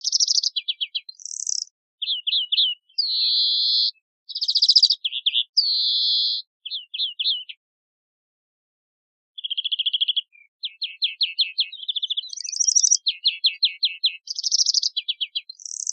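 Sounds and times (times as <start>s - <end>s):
greenfinch twittering trills: 0.0s - 7.6s, 9.4s - 15.9s.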